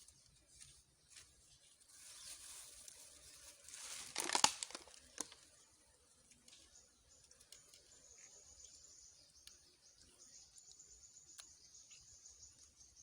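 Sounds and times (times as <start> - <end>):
crinkling handling noise: 0.3 - 5.5
sharp clicks and crackles: 4.1 - 5.4.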